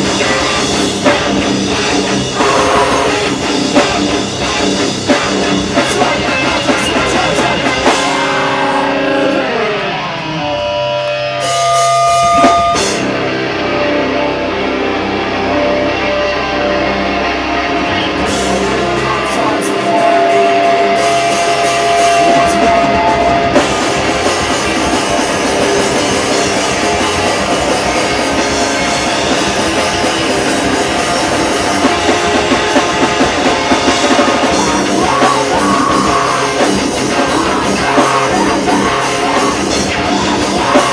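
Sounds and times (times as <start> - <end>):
drum kit: 0.0 - 13.5, 17.9 - 40.9
distorted electric guitars: 0.0 - 40.9.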